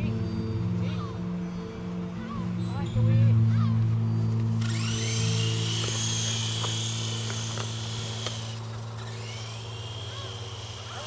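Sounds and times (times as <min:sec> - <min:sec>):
high motor whine: 0:00.0 - 0:11.0
helicopter rotor buzz: 0:02.2 - 0:11.0.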